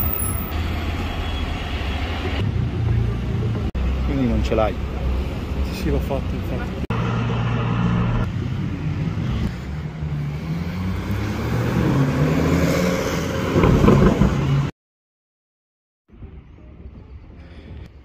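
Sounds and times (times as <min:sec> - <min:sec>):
car engines accelerating: 0:02.4 - 0:14.7.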